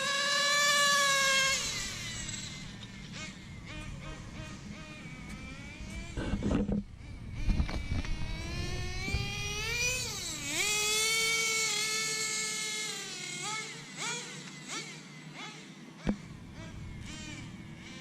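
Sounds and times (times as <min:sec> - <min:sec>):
rc car engine buzzing: 0:00.0 - 0:18.0.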